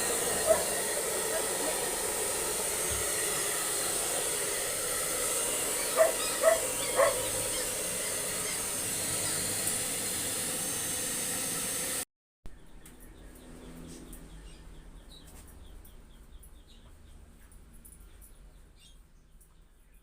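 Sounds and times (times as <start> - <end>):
blow dryer running: 0.0 - 12.0.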